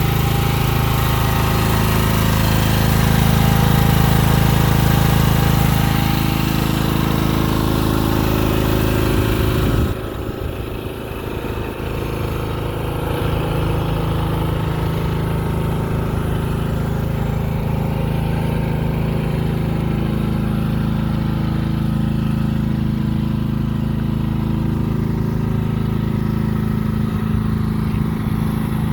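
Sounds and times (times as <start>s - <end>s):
mini excavator engine running: 0.0s - 28.9s.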